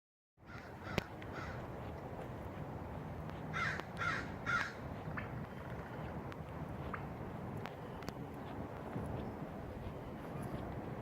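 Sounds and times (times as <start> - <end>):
harsh crow-like bird calls: 0.4 - 1.7, 3.5 - 4.8.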